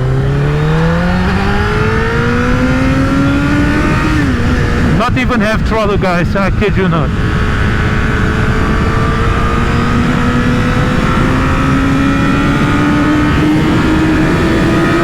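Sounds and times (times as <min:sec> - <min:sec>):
motorcycle engine accelerating: 0:00.0 - 0:15.0
wind rumble on microphone: 0:00.0 - 0:15.0.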